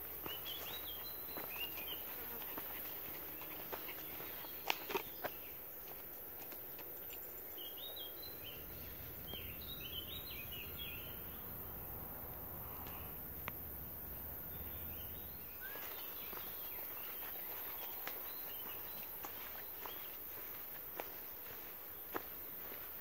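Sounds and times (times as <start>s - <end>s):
small bird chirping: 0.0s - 5.9s, 6.8s - 20.5s
faint clicks: 12.2s - 13.7s.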